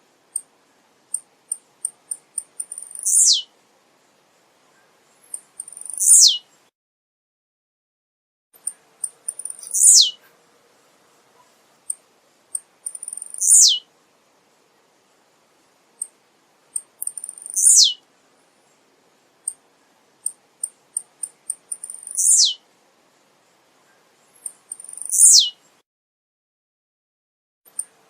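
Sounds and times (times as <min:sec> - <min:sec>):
bird singing high notes: 0:02.7 - 0:03.5, 0:05.7 - 0:06.4, 0:09.4 - 0:10.2, 0:13.2 - 0:13.8, 0:17.4 - 0:18.0, 0:21.8 - 0:22.6, 0:24.8 - 0:25.6.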